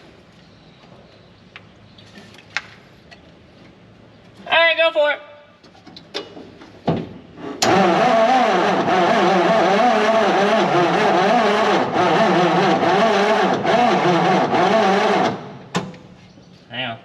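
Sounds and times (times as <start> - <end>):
engine cranking by starter: 7.4 - 16.0.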